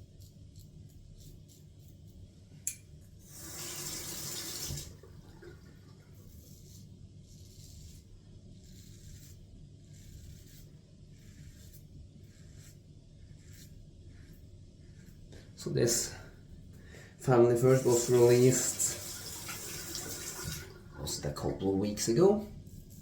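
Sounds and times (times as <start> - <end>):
tap running: 3.5 - 5.7, 17.8 - 20.9
razor scraping stubble: 6.1 - 16.0.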